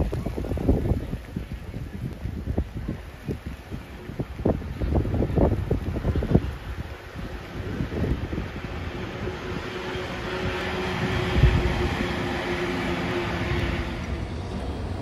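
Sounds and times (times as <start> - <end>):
wind buffeting microphone: 0.0 - 15.0
train running past: 6.0 - 15.0.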